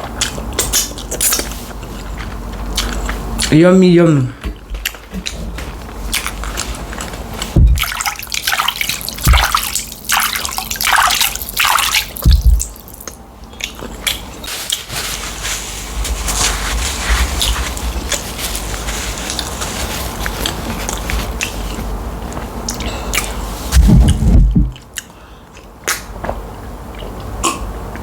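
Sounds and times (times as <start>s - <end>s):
person chewing and slurping: 0.0s - 3.5s, 4.6s - 14.9s, 17.4s - 25.7s
dull low thuds: 7.6s - 7.9s, 9.2s - 9.6s, 12.2s - 12.8s, 23.7s - 24.8s.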